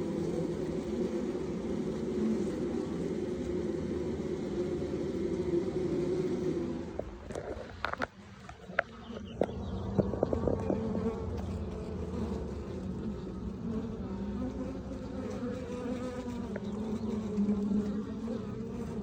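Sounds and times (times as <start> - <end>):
honeybees buzzing: 0.0 - 19.0
light knocks of hive parts: 6.9 - 11.5.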